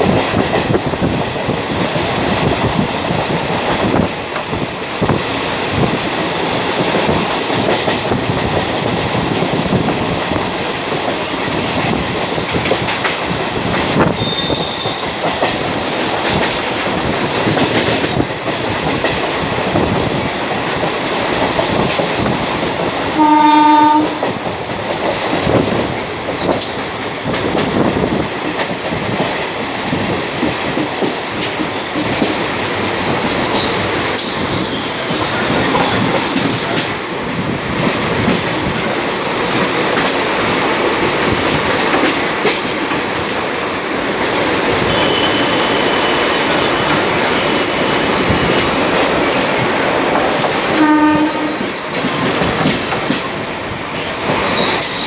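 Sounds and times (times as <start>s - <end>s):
train wheels clattering on rails: 0.0s - 55.0s
train horn: 14.2s - 15.1s, 23.1s - 24.4s, 44.7s - 46.9s, 50.7s - 51.7s.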